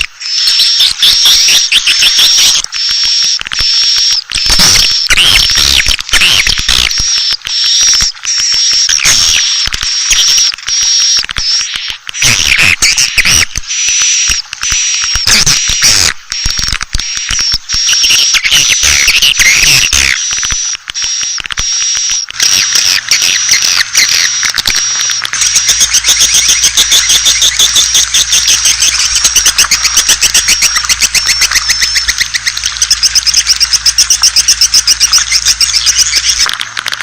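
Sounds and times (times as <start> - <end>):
swiftlets chirping and twittering: 0.0 - 36.6
rapid clicks: 0.0 - 37.0
steady low hum: 22.0 - 36.5.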